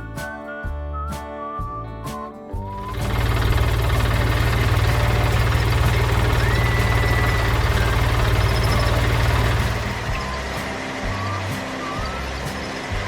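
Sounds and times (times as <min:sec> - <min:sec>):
tractor engine idling: 0:02.8 - 0:10.3.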